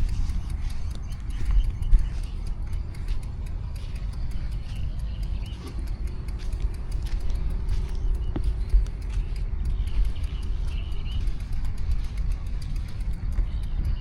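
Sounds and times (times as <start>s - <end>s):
bicycle clicks and rattles: 0.0s - 14.0s
city motor traffic: 0.0s - 14.0s
wind and road noise: 0.0s - 14.0s.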